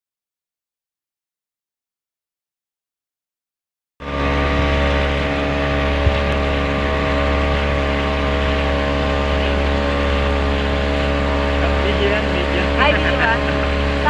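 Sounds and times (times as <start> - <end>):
motorboat engine drone: 4.0 - 14.0
wind and water noise: 4.0 - 14.0.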